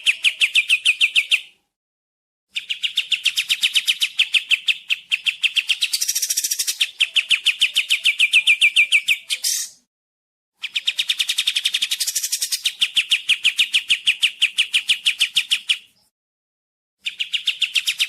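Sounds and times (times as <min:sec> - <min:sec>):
bird singing fast trill: 0:02.5 - 0:09.9, 0:10.6 - 0:16.1, 0:17.0 - 0:18.0.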